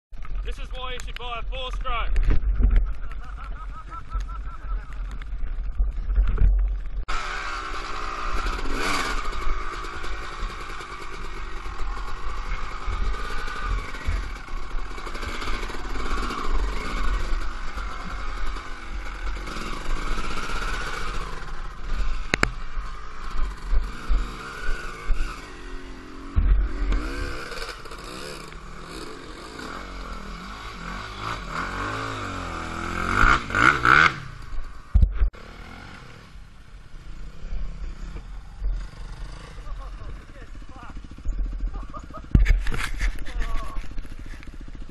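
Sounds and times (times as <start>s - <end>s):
wind rumble on microphone: 2.0s - 3.8s
dirt bike engine revving: 7.0s - 44.9s.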